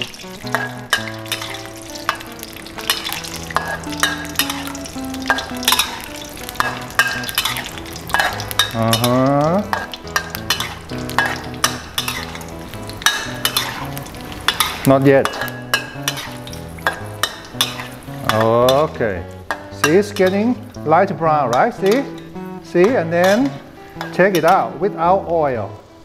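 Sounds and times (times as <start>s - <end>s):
nuts sizzling in hot oil: 0.0s - 26.0s
metal spatula scraping a wok: 0.4s - 2.2s, 2.9s - 4.6s, 5.6s - 20.5s.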